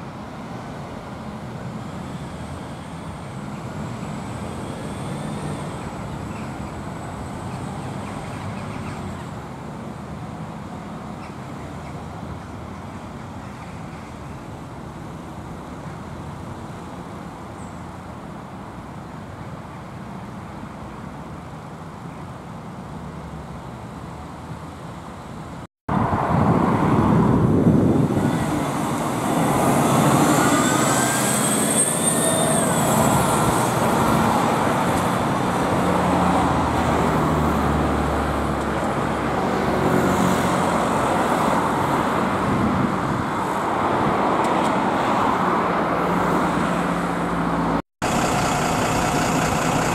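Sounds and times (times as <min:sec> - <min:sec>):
vehicle rumble: 0:22.7 - 0:49.9
vehicle passing close with whine: 0:25.9 - 0:49.9.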